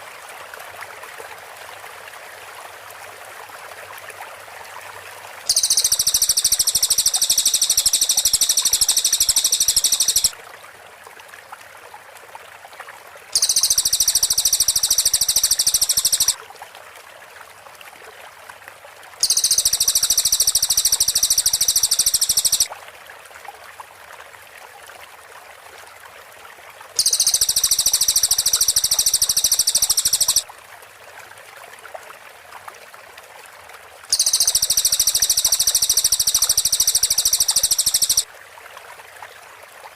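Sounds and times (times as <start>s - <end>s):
bird rapid high trills: 5.5s - 10.3s, 13.4s - 16.4s, 19.2s - 22.7s, 27.0s - 30.4s, 34.1s - 38.2s.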